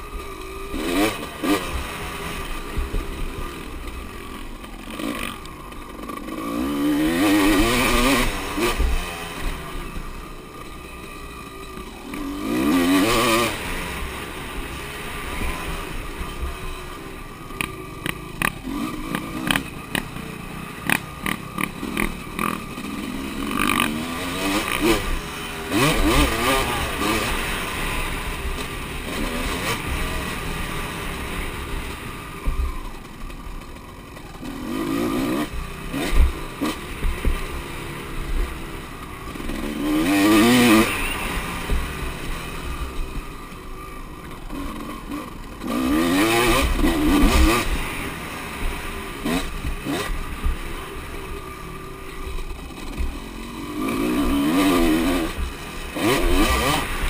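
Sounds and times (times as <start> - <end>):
motorcycles revving and passing: 0.0 - 57.0
sharp clicks and rattles: 17.5 - 20.2.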